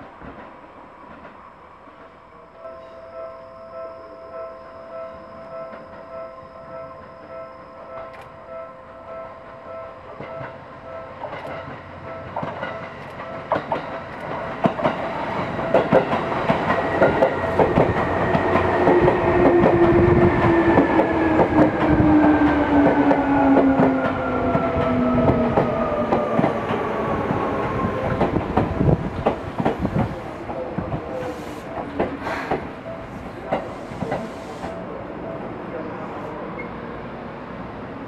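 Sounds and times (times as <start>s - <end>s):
level-crossing bell ringing: 2.4s - 14.1s.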